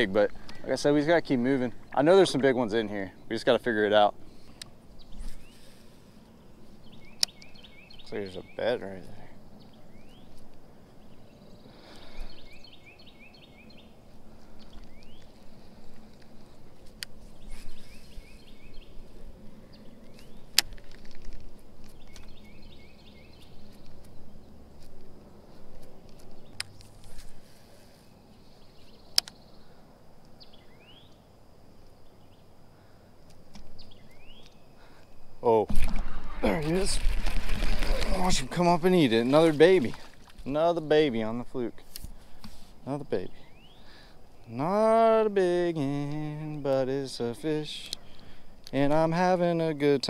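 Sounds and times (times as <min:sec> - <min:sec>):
rising bird chirps: 0:04.1 - 0:20.6, 0:27.6 - 0:32.9, 0:33.7 - 0:40.1, 0:43.1 - 0:48.6.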